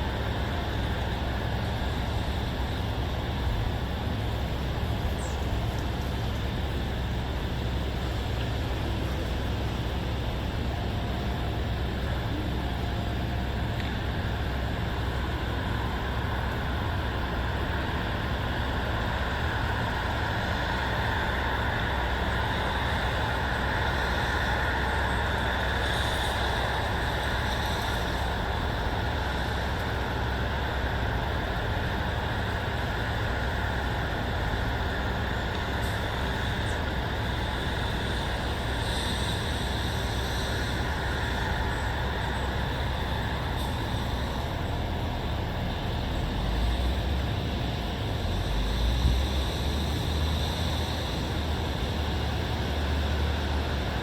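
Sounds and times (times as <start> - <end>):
distant road traffic rumble: 0.0 - 54.0.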